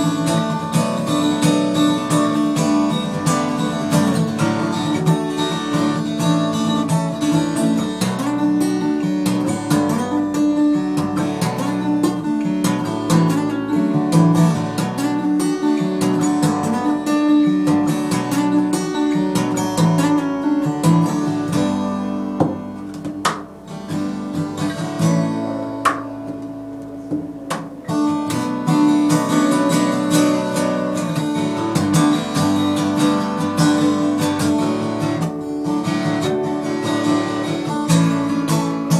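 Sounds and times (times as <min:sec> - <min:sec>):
acoustic guitar playing: 0:00.0 - 0:38.9.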